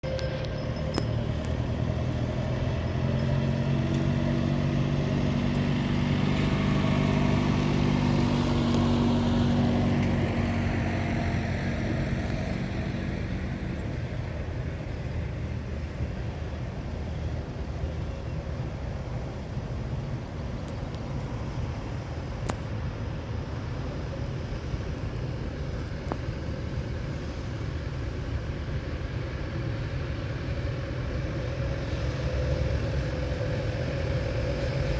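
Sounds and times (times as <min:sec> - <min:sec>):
tractor engine passing: 0:00.0 - 0:20.4, 0:29.6 - 0:34.9
low rumble of engines: 0:00.0 - 0:34.9.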